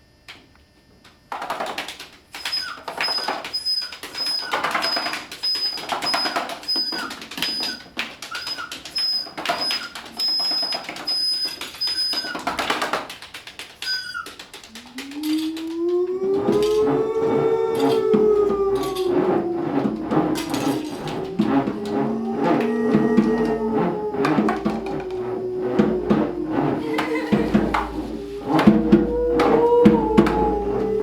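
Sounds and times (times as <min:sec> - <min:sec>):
hissing rustling texture: 0:14.5 - 0:31.0.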